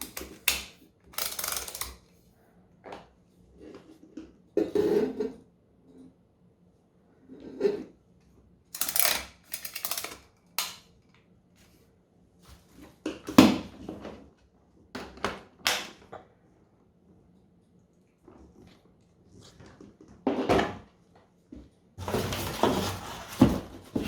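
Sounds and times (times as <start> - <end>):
parts and packaging handled: 0.0 - 2.1, 8.8 - 10.8, 22.0 - 24.0.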